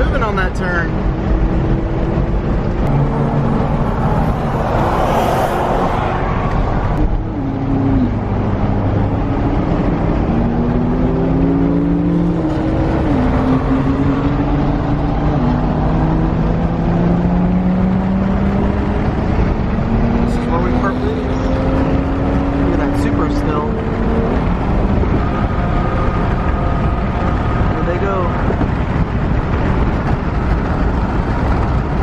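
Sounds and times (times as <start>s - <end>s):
car engine accelerating: 0.0s - 32.0s
car passing by: 2.9s - 7.0s.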